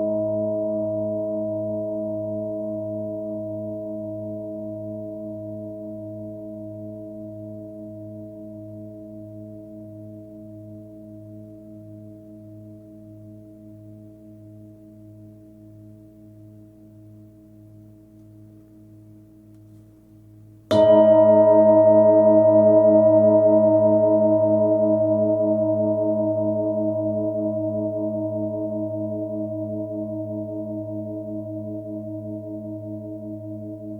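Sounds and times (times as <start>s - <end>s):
singing bowl struck: 20.7s - 28.3s
singing bowl ringing: 20.7s - 30.4s.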